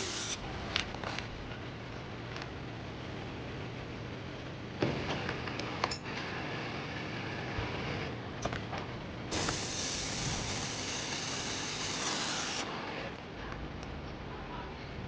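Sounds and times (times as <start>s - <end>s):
spraying hiss: 0.0s - 0.4s, 9.3s - 12.7s.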